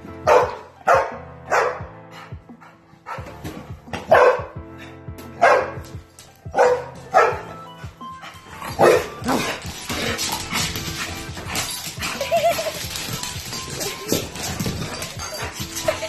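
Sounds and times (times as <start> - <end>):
background music: 0.0 - 16.0
dog barking: 0.2 - 2.0, 4.0 - 4.6, 5.3 - 5.8, 6.5 - 7.5, 8.8 - 9.4.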